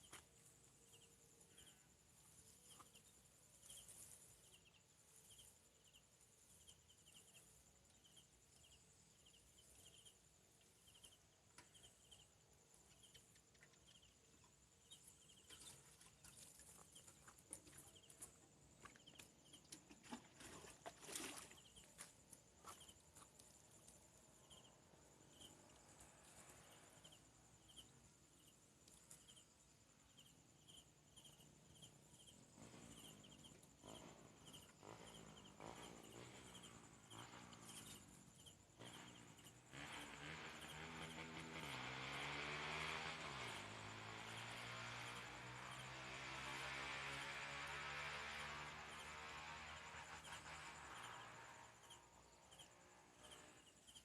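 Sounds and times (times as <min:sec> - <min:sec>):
insect chirp: 0:00.0 - 0:54.0
insect high-pitched buzz: 0:24.4 - 0:54.0.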